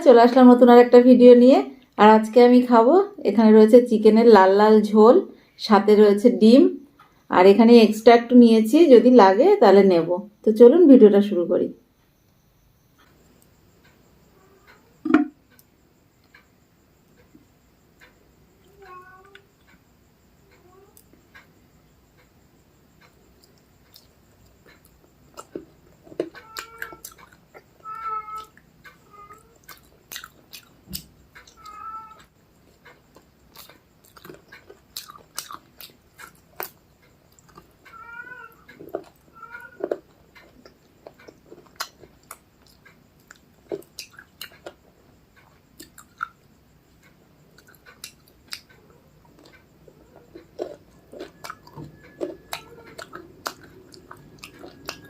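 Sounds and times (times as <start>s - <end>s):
cat meowing: 18.6s - 19.5s, 26.4s - 27.2s, 27.8s - 29.7s, 31.5s - 32.3s, 37.8s - 40.0s, 52.5s - 53.7s
person chewing food: 23.4s - 27.8s, 29.6s - 31.6s, 32.7s - 37.9s, 38.6s - 39.2s, 39.8s - 55.0s.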